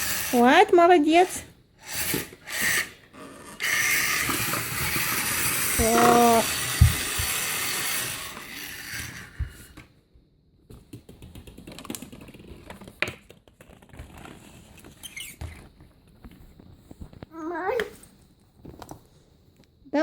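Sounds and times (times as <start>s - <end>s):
toy electric motor whirring: 0.0s - 9.8s.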